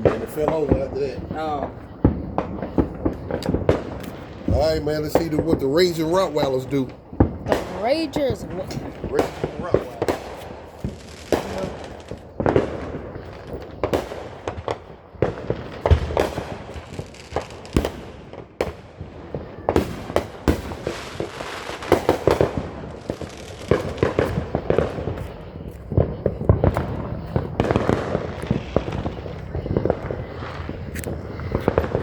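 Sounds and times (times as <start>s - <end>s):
firework bangs and crackles: 0.0s - 32.0s.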